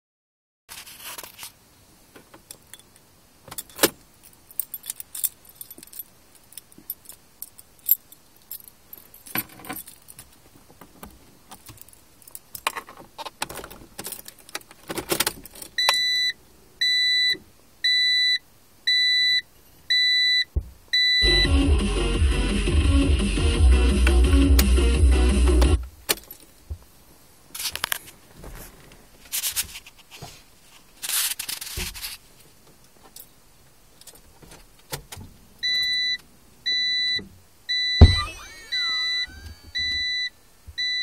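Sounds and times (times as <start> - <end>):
car keys jangling and clicking: 2.4 - 16.0
electronic car chime beeping: 15.8 - 21.7, 35.6 - 41.0.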